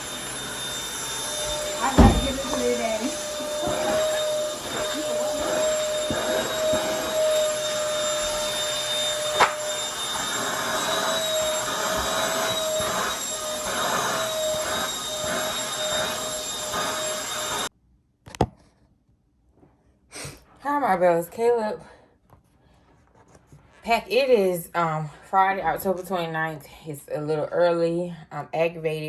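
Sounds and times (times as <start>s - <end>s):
vacuum cleaner running: 0.0s - 17.7s.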